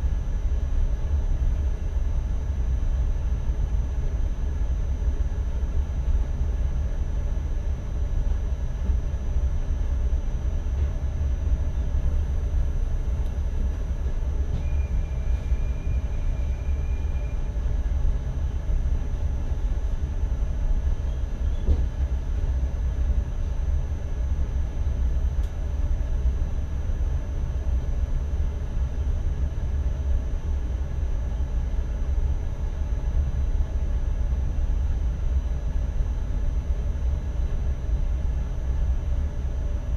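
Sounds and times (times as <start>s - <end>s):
train running gear rumble: 0.0s - 39.9s.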